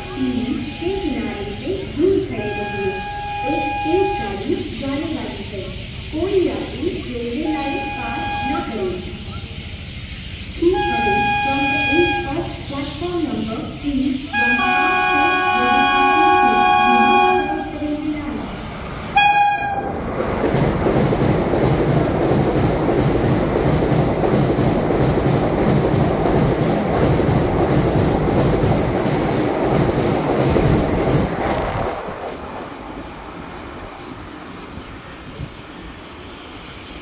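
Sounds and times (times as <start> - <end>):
train horn blast: 2.4 - 4.4, 7.5 - 8.8, 10.8 - 12.4, 14.3 - 17.8, 19.2 - 20.0
rush of wheels and air: 29.2 - 35.6.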